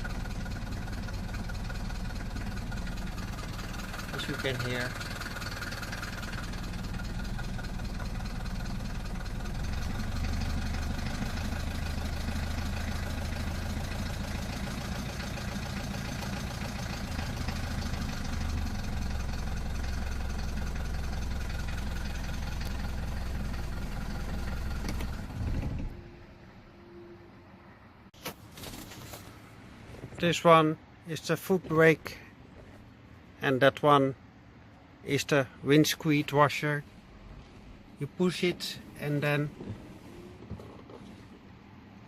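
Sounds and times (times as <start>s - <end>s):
diesel engine idling: 0.0s - 28.1s.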